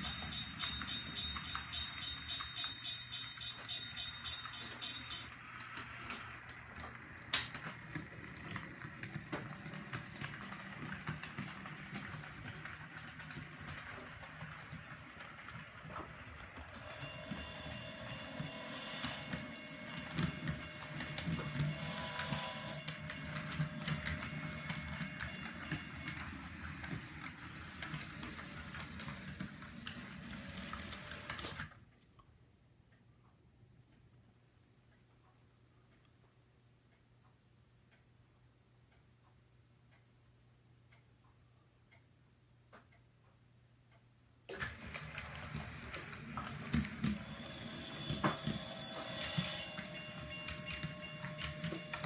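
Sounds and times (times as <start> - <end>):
model train rumbling: 0.0 - 31.4, 44.7 - 52.0
wheels clicking over rail joints: 0.0 - 31.5, 44.6 - 52.0.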